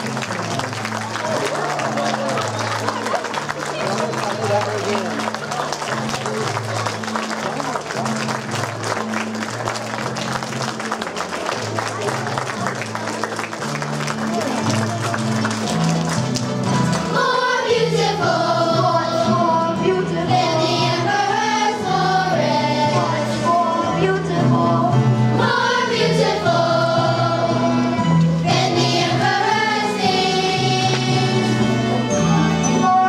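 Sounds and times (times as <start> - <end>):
instrumental accompaniment: 0.0 - 33.0
children's choir singing: 17.0 - 33.0.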